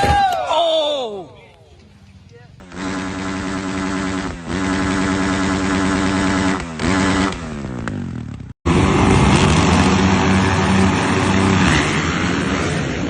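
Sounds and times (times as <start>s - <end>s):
dirt bike engine at high revs: 2.6s - 13.0s
dirt bike engine running: 2.6s - 13.0s.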